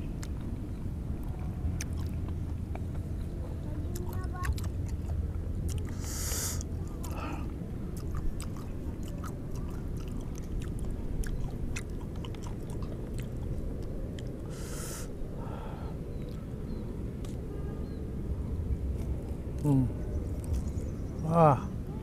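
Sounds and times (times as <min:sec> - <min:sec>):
steady low rumble: 0:00.0 - 0:22.0
chewing juicy fruit: 0:01.2 - 0:15.2, 0:18.8 - 0:21.2
wet mouth clicks: 0:03.9 - 0:07.2, 0:08.0 - 0:15.1.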